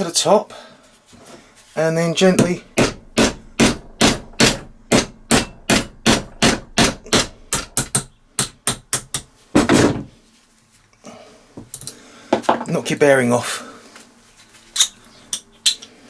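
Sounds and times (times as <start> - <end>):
hammer tapping metal punch: 2.3 - 9.9.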